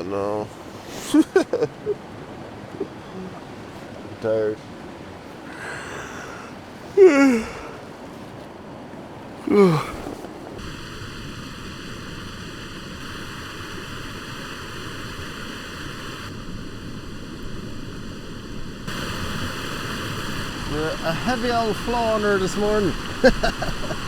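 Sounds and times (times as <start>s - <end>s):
stream rushing: 0.0s - 16.6s, 18.7s - 24.0s
man groaning: 5.5s - 7.8s, 9.4s - 10.1s.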